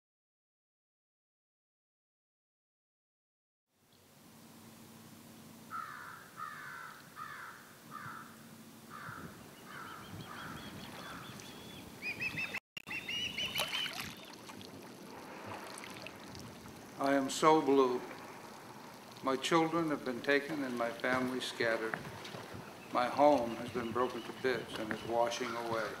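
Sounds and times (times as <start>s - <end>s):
bird falling calls: 5.7s - 14.4s, 20.6s - 26.0s
higher-pitched bird calls: 5.7s - 14.4s.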